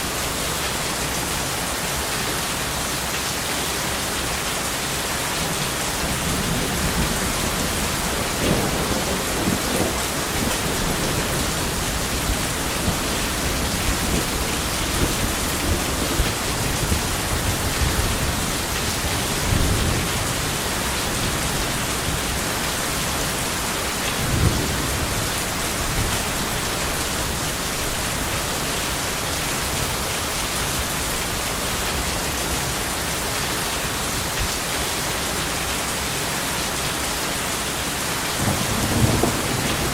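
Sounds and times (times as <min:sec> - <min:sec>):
heavy rain: 0:00.0 - 0:39.9
rolling thunder: 0:06.0 - 0:22.4, 0:24.1 - 0:28.2, 0:38.4 - 0:39.9.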